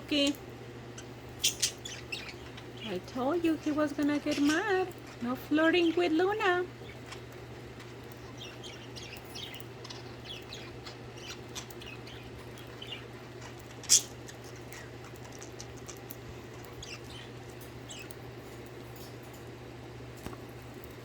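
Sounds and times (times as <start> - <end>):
steady low hum: 0.0 - 21.0
budgerigars chirping: 1.0 - 4.9, 8.2 - 15.9, 16.6 - 18.2.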